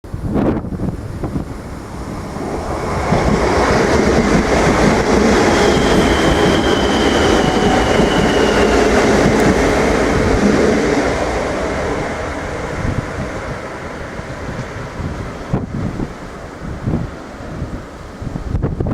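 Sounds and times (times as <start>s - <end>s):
train running past on track: 0.8s - 18.6s
high wheel squeal: 5.2s - 10.8s.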